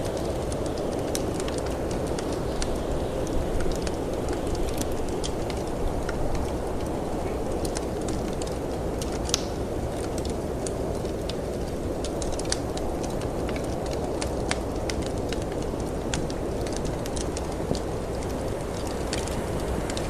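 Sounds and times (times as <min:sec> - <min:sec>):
low rush of wind: 0:00.0 - 0:20.0
wood fire crackling: 0:00.0 - 0:20.0.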